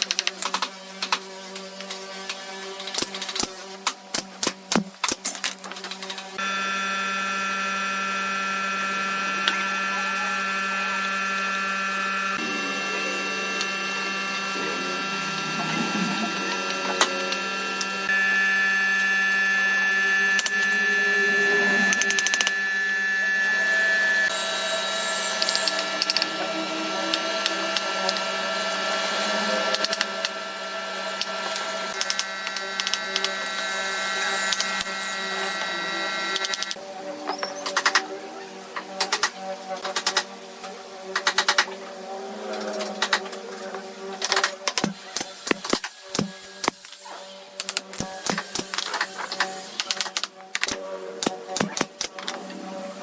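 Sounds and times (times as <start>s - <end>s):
power tool motor whine: 6.4s - 36.8s.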